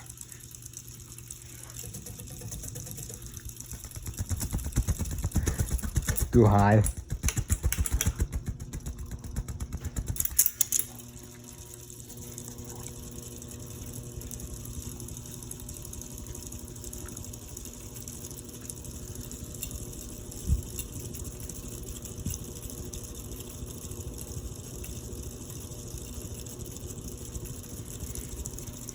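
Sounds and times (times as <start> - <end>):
ceiling fan clatter and hum: 0.0 - 28.9.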